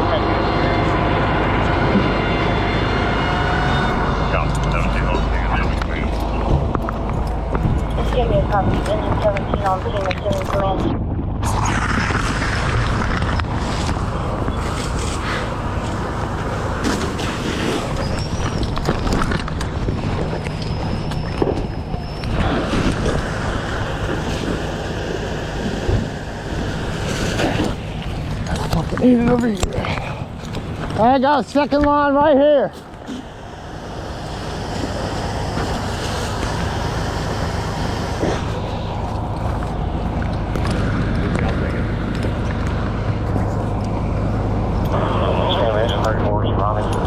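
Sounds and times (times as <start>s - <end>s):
fire engine pump rumble: 0.0s - 47.0s
thin high whine: 0.0s - 47.0s
rushing water noise: 33.0s - 41.2s.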